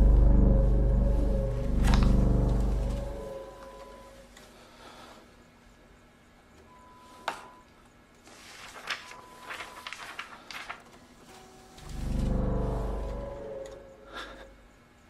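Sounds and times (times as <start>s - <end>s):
loud low hum: 0.0s - 4.3s, 11.8s - 14.6s
paper rustling and crackling: 8.2s - 11.6s
paper click: 8.5s - 11.0s.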